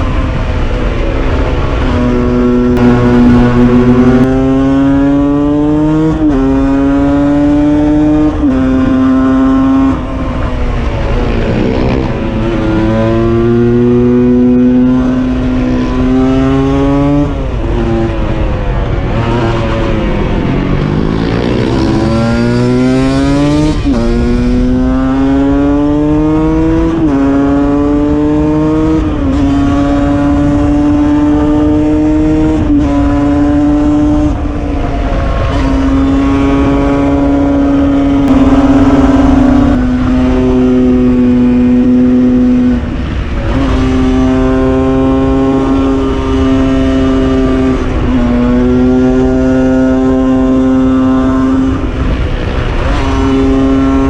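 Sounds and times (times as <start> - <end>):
motorcycle revving and shifting gears: 0.0 - 54.0
second engine passing: 2.7 - 5.7, 38.2 - 40.1.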